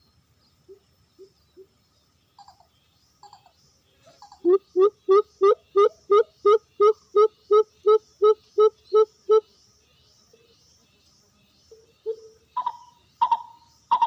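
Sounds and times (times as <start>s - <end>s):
dove cooing: 12.1s - 14.0s.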